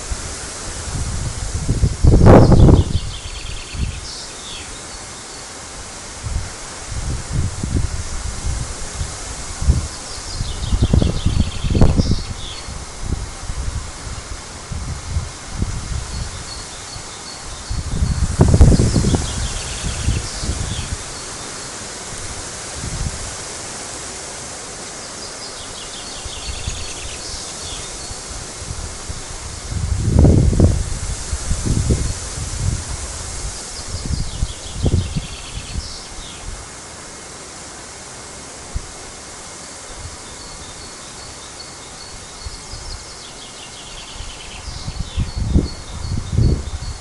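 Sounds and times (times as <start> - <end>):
wind gusts buffeting microphone: 0.0 - 4.2, 6.0 - 24.2, 26.2 - 36.8, 44.1 - 47.0
wind through leaves: 0.0 - 47.0.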